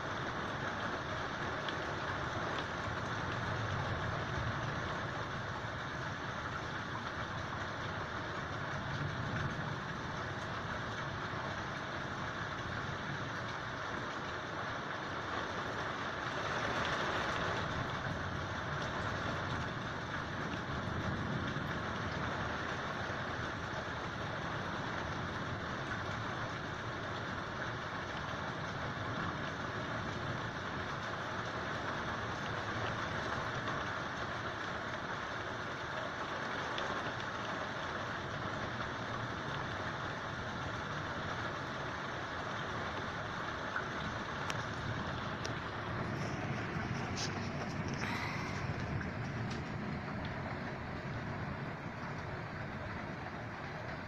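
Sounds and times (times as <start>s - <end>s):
rain falling: 0.0s - 54.0s
low rumble: 44.1s - 54.0s.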